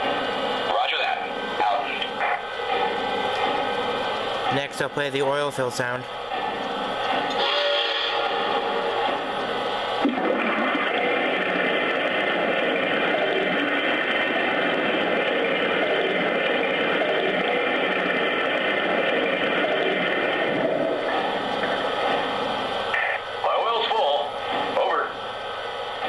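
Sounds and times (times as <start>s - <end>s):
oil pouring sound effect: 6.2s - 22.6s.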